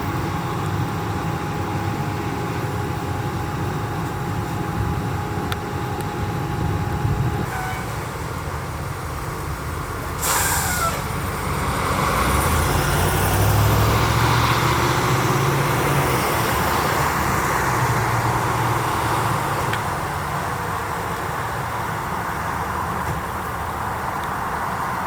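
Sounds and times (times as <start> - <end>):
truck diesel engine pulling away: 0.0 - 25.0
air brake hiss: 10.2 - 11.1.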